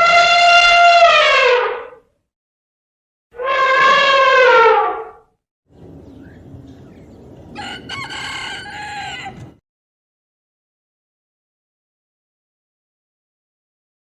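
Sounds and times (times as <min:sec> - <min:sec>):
rooster crowing: 0:07.5 - 0:09.6.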